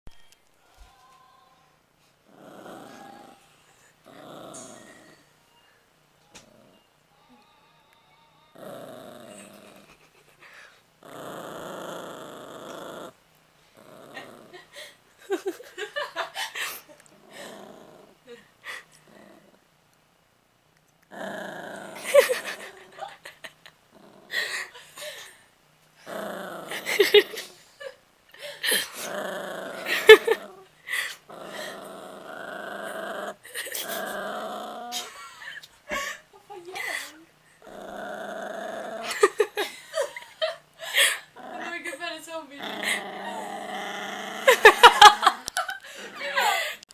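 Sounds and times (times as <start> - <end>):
dog growling and grumbling: 2.3 - 5.3, 6.3 - 6.8, 8.5 - 10.3, 11.0 - 15.8, 16.9 - 19.6, 21.1 - 25.2, 26.0 - 36.1, 36.7 - 46.4.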